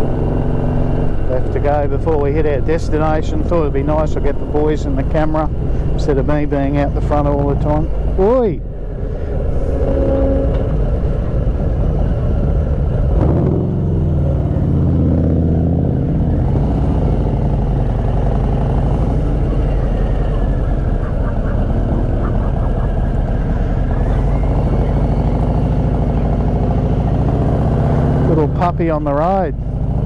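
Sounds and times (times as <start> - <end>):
road noise: 0.0 - 30.0
motorcycle engine running: 11.5 - 30.0.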